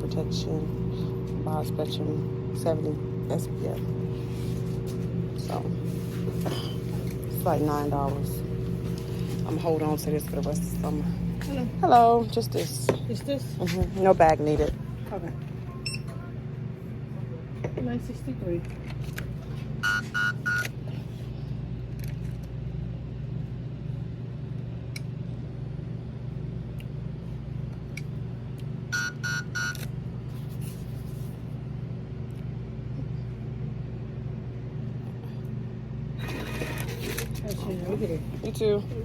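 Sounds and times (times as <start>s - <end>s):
low hum: 0.0s - 28.9s
card terminal beeping: 15.7s - 16.3s, 19.8s - 20.8s, 28.9s - 29.9s, 36.2s - 37.2s.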